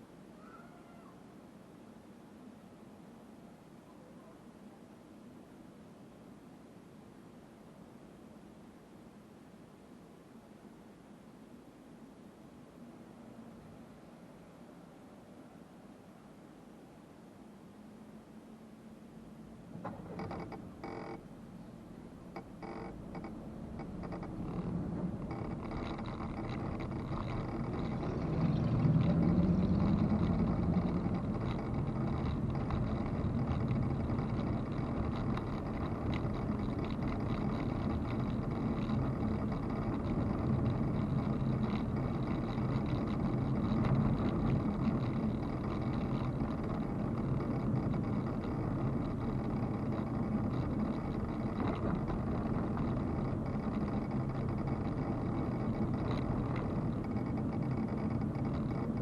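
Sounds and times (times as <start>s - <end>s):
road noise: 19.1s - 59.0s
car engine accelerating: 22.6s - 59.0s.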